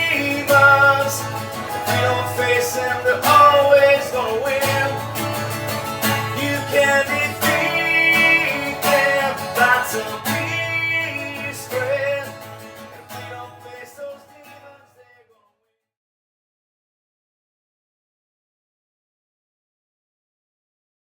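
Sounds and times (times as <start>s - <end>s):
acoustic guitar strumming: 0.0s - 15.2s.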